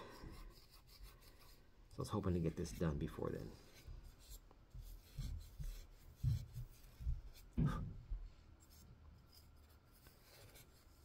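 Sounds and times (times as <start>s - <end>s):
hand scrubbing metal: 0.0s - 7.6s.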